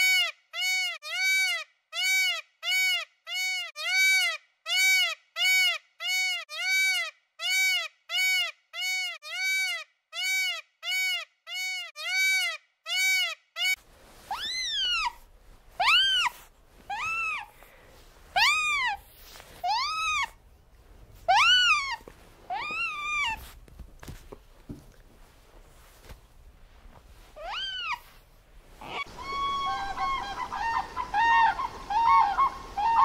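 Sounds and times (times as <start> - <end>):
faint background hiss: 13.8 - 33.0
otter squealing calls: 14.3 - 15.2, 15.8 - 17.5, 18.4 - 19.0, 19.6 - 20.4, 21.3 - 23.4, 27.4 - 28.1, 28.8 - 33.0
short animal calls: 28.8 - 30.6.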